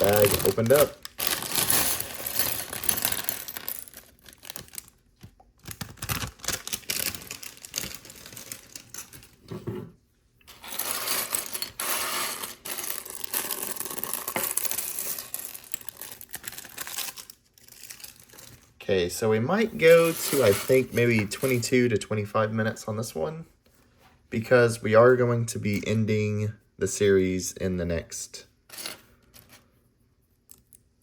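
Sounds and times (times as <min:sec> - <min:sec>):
plastic bricks clattering: 0:00.0 - 0:04.9, 0:10.6 - 0:18.5
plastic bag crinkling: 0:00.0 - 0:09.4, 0:10.7 - 0:18.8.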